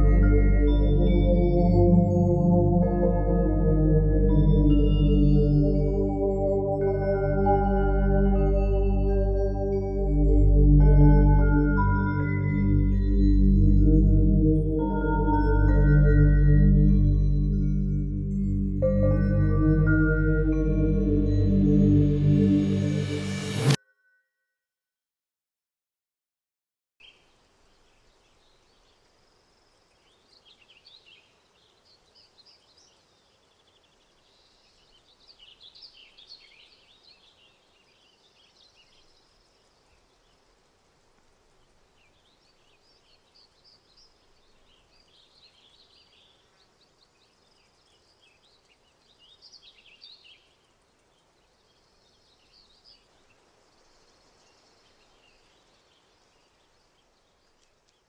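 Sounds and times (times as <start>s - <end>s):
songbirds singing: 27.0s - 58.0s.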